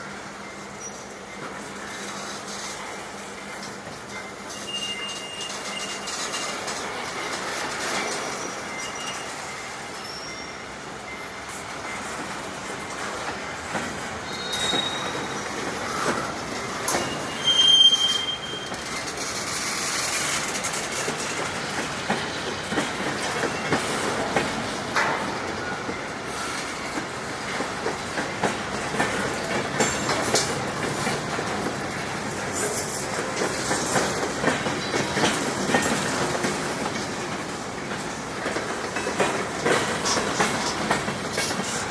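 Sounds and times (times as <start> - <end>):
high wheel squeals: 4.5 - 6.6, 8.2 - 10.7, 14.2 - 19.2
train wheels clacking over rail joints: 12.0 - 17.7, 18.6 - 41.9.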